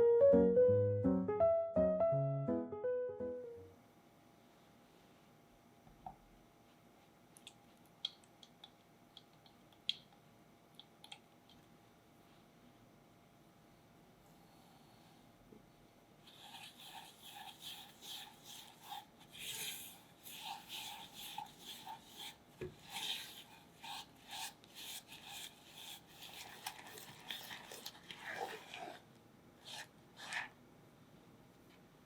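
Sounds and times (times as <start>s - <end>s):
lemon rind grating: 16.3s - 29.0s.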